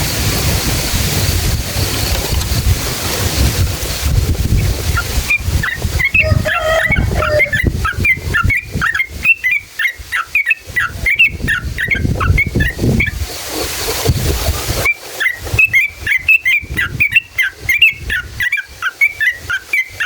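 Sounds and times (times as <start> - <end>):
wind rumble on microphone: 0.0 - 18.8
bird singing bubbly chirps: 4.6 - 13.2, 14.8 - 20.0.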